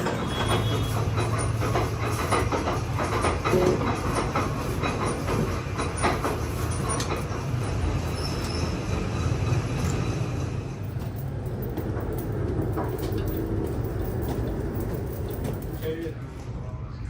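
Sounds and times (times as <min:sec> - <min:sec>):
heavy machine tool rumbling: 0:00.0 - 0:16.2.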